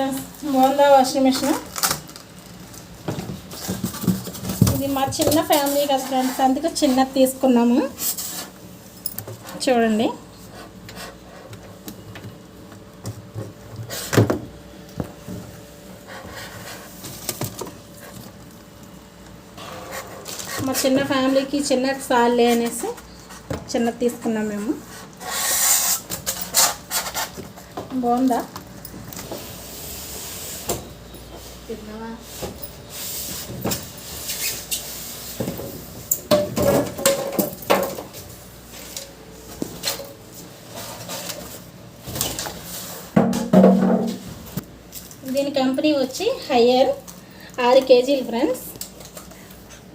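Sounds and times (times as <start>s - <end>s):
knocks and clatter on washing machine: 43.2s - 44.4s.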